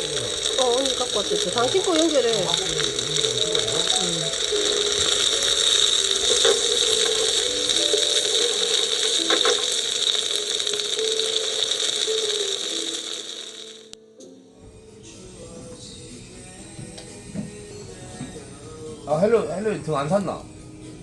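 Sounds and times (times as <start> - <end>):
loud steady hiss: 0.0 - 14.0.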